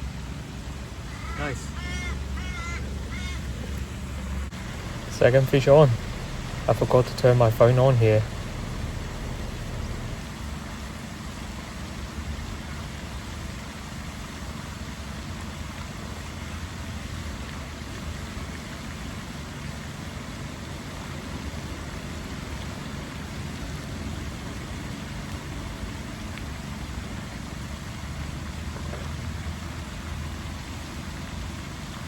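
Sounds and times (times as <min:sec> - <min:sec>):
outdoor background noise: 0:00.0 - 0:32.0.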